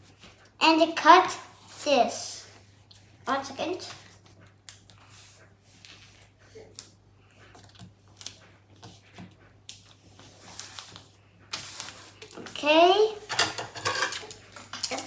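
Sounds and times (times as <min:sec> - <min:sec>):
paper rustling: 0:03.8 - 0:12.6.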